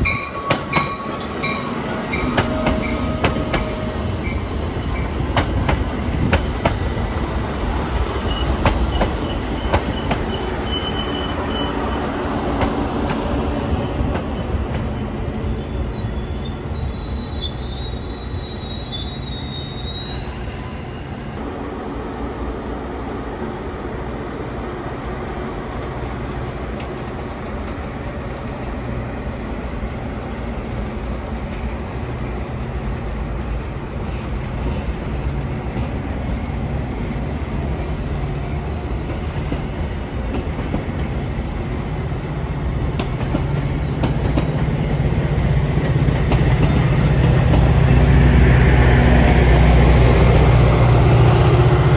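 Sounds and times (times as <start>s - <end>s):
train clattering on rails: 0.0s - 21.3s, 23.9s - 51.9s
high wheel squeal: 8.2s - 12.1s, 13.6s - 21.4s.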